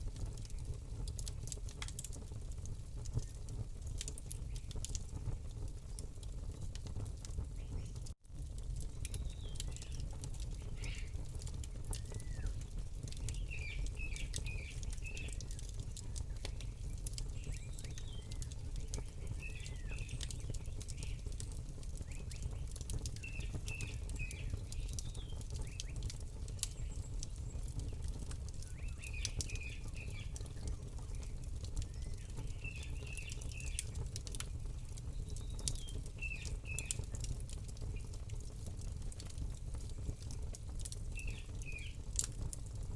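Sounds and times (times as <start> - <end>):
campfire crackling and popping: 0.0 - 42.9
small bird chirping: 10.6 - 11.2, 11.9 - 21.4, 22.0 - 34.0.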